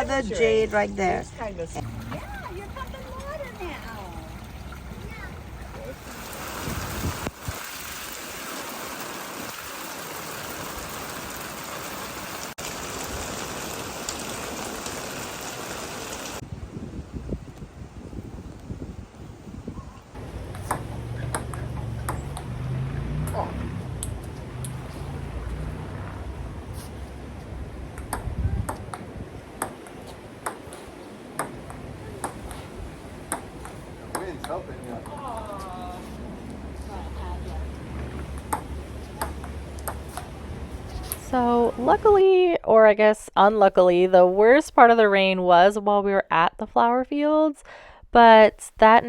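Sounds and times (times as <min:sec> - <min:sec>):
low uneven rumbling: 0:00.0 - 0:07.4, 0:16.3 - 0:29.6
water rushing: 0:01.8 - 0:16.4.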